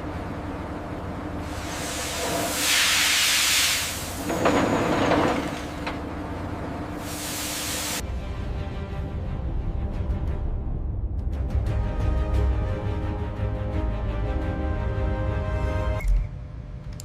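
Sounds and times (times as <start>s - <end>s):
loud gas hissing: 1.4s - 4.4s, 7.0s - 8.0s.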